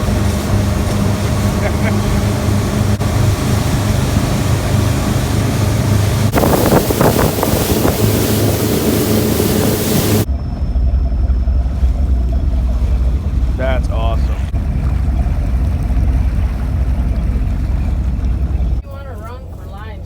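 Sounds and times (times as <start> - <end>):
motorboat engine running: 0.0 - 20.0
water rushing against hull: 0.0 - 20.0
wind noise on microphone: 3.0 - 13.6.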